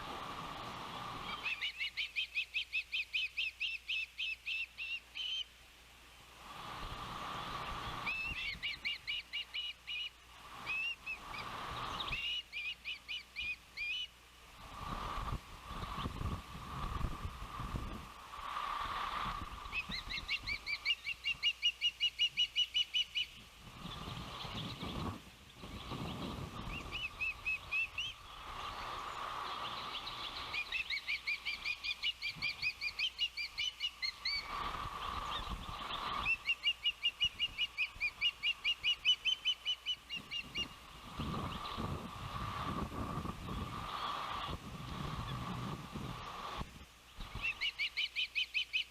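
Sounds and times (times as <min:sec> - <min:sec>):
osprey whistled chirps: 0:01.2 - 0:05.5, 0:07.8 - 0:14.1, 0:19.6 - 0:42.0, 0:47.2 - 0:48.9
wind buffeting microphone: 0:14.6 - 0:20.7, 0:23.5 - 0:30.7, 0:34.3 - 0:36.4, 0:40.1 - 0:47.6.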